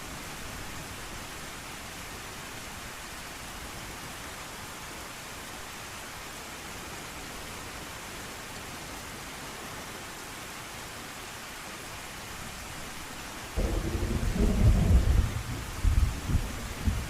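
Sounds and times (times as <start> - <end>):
rain hissing: 11.8 - 17.0
thunder rumbling: 13.6 - 17.0.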